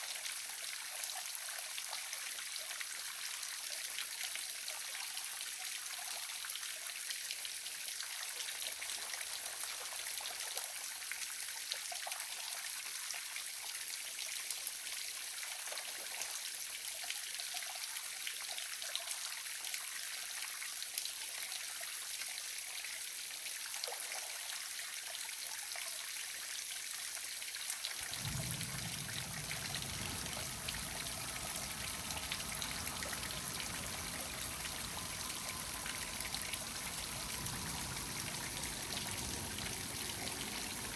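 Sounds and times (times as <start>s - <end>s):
low rumble: 28.0s - 40.9s
waterfall splashing: 28.0s - 40.9s.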